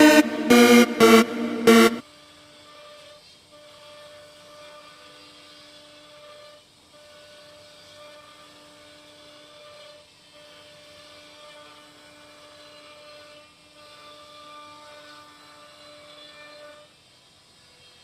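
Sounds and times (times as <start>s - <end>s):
machine spindle whining: 0.0s - 2.0s.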